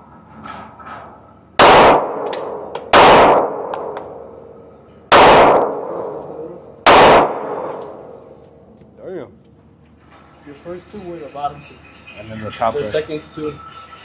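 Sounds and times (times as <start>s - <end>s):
pistol shots: 1.6s - 4.2s, 5.1s - 6.2s, 6.8s - 8.1s.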